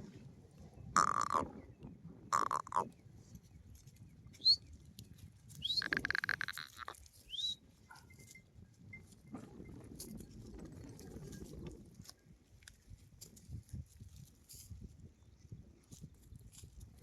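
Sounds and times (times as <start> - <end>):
goat bleating: 5.7 - 7.0.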